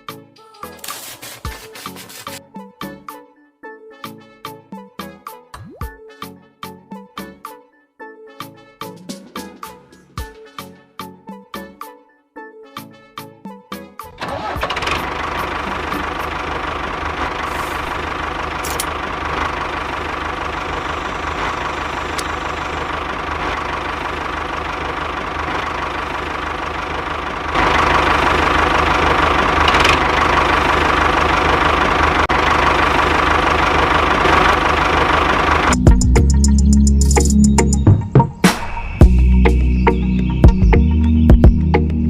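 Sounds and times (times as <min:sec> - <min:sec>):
engine humming: 0:14.1 - 0:42.0.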